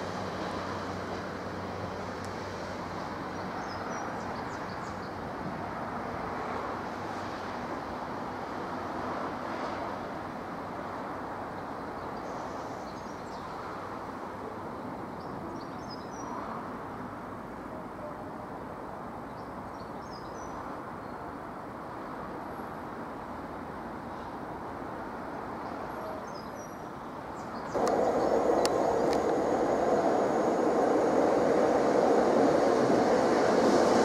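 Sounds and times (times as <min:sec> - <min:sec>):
steady outdoor rumble: 0:00.0 - 0:09.0, 0:22.2 - 0:34.0.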